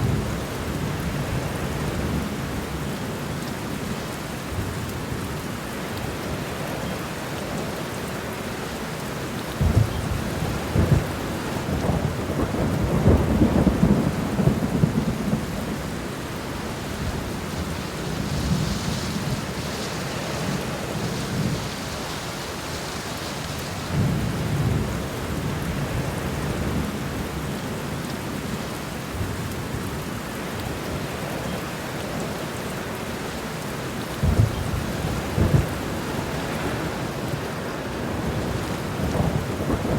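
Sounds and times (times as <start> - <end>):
steady rain falling: 0.0 - 39.9
thunder rumbling: 9.6 - 22.0, 34.2 - 39.9.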